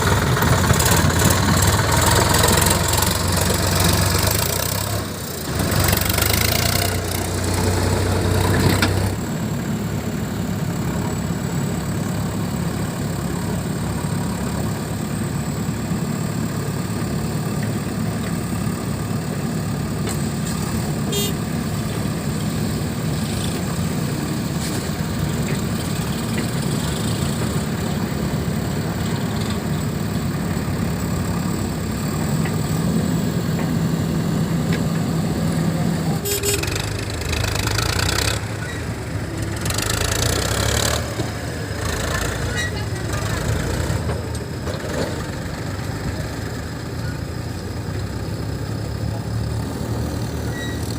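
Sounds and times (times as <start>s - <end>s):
heavy diesel engine running: 0.0s - 50.9s.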